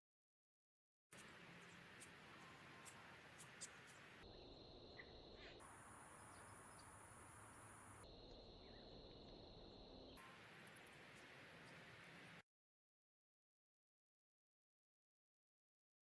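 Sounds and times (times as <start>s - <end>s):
insect drone: 1.2s - 12.4s.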